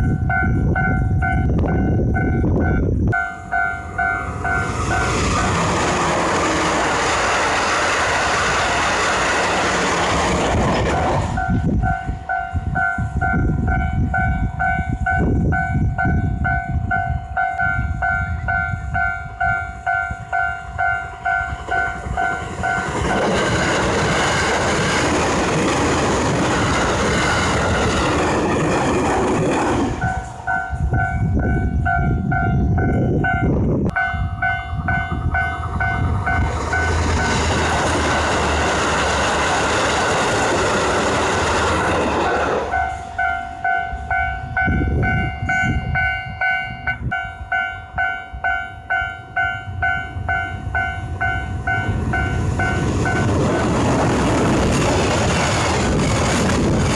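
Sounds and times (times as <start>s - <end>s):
level-crossing warning bell: 0.0s - 5.6s, 11.3s - 28.3s, 29.9s - 39.8s, 42.4s - 53.9s
trains rumbling past: 0.0s - 56.9s.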